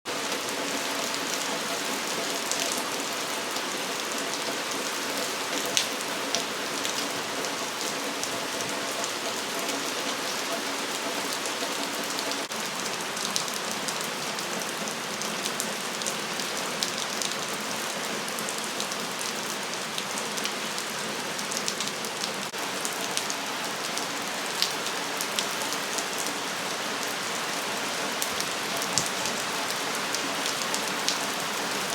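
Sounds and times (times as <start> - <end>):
raindrops tapping on surfaces: 28.2 - 31.9.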